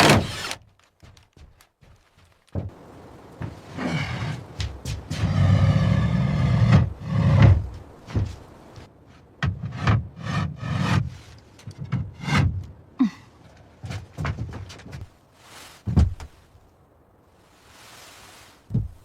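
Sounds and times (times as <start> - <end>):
wood rasping: 0.0 - 0.6, 3.8 - 8.5.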